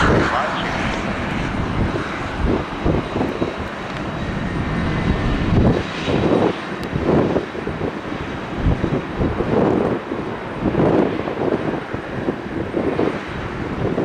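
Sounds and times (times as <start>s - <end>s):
jet engines roaring: 0.0s - 14.0s
wind buffeting microphone: 0.0s - 14.0s.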